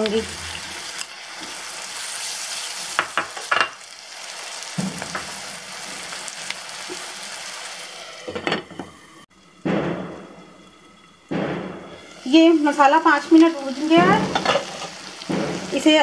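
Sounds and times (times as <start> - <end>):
onions sizzling in hot fat: 0.0 - 9.2, 12.0 - 16.0.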